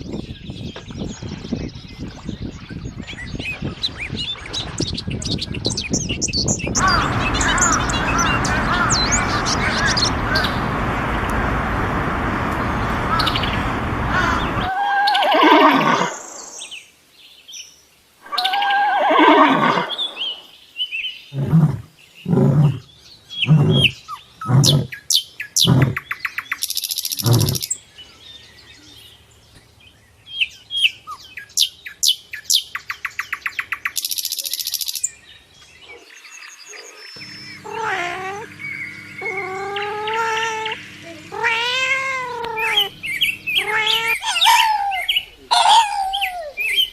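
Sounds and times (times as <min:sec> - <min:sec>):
short loud calls: 0:06.8 - 0:16.2
rising and falling calls: 0:06.8 - 0:16.7, 0:18.3 - 0:20.5, 0:37.2 - 0:46.9
long pitched animal cries: 0:14.1 - 0:16.3, 0:18.3 - 0:20.0, 0:37.4 - 0:38.5, 0:39.2 - 0:46.8.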